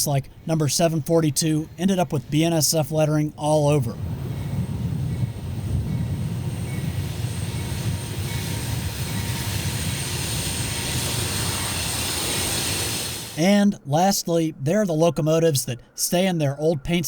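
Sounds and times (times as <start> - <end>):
freight train rumbling past: 3.7 - 13.6.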